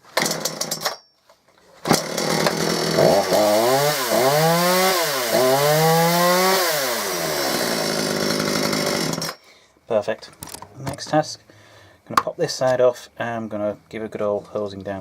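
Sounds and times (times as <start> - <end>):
chainsaw starting and revving: 0.1 - 1.0, 1.8 - 9.4.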